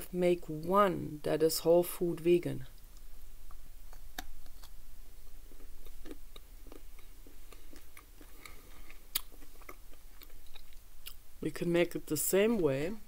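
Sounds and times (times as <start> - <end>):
mouth clicks: 2.8 - 4.8
chewing chocolate: 3.0 - 4.8, 5.4 - 11.2.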